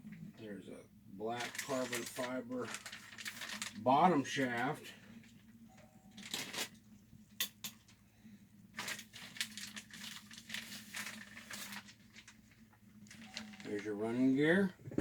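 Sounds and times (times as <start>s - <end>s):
packaging crinkling: 1.4s - 5.4s, 6.2s - 6.8s, 8.7s - 14.0s.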